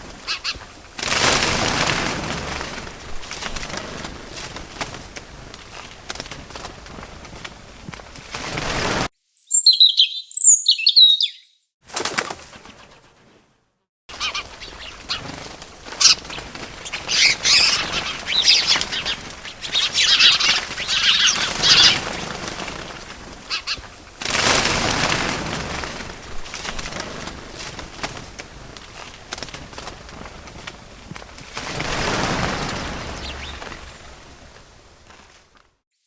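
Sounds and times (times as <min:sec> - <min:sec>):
small birds chirping: 0:00.0 - 0:01.0, 0:09.2 - 0:11.7, 0:14.1 - 0:24.1, 0:32.0 - 0:34.5
wings flapping: 0:00.0 - 0:09.1, 0:11.8 - 0:35.8.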